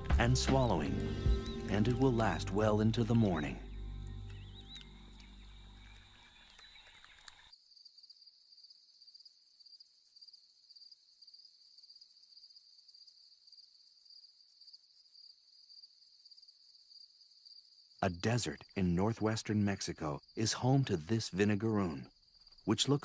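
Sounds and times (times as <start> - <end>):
soft music: 0.0 - 6.2
crickets chirring: 1.0 - 23.0.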